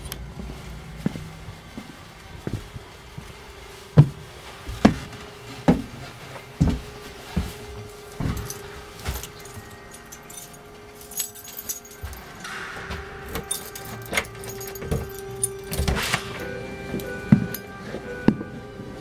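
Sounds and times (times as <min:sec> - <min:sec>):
heavy footsteps: 0:00.0 - 0:19.0
keys jingling: 0:07.4 - 0:18.2.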